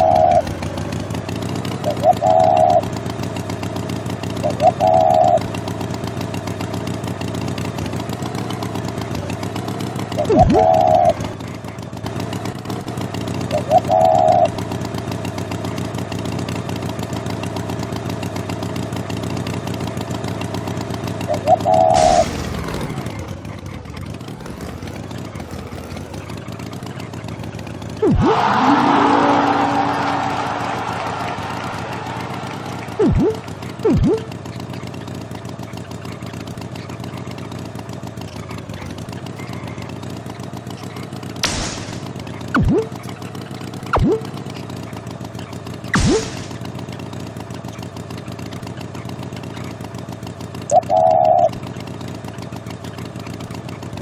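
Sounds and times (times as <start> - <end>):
engine running steadily: 0.0 - 54.0
short wavering tone: 42.6 - 43.0, 44.0 - 44.3.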